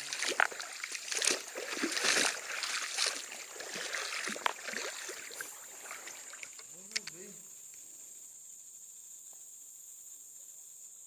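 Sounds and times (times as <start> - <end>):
creek water splashing: 0.0 - 7.2
sharp click: 6.5 - 7.3.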